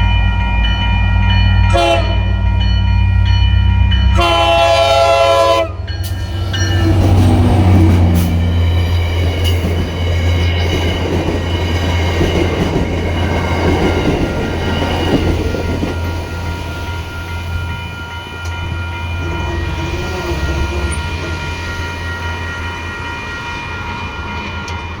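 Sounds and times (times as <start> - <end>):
diesel locomotive drone: 0.0 - 25.0
train cars clattering on rails: 5.3 - 25.0.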